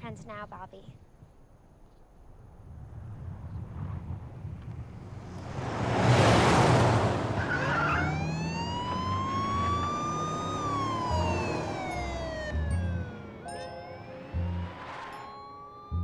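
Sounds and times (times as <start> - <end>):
police siren wailing: 7.3 - 16.0
loud rush of noise: 13.2 - 15.4.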